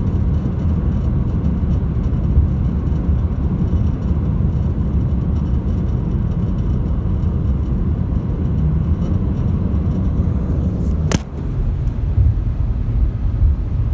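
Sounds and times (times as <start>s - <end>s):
car road and wind rumble: 0.0s - 13.9s
sharp click: 10.8s - 11.5s.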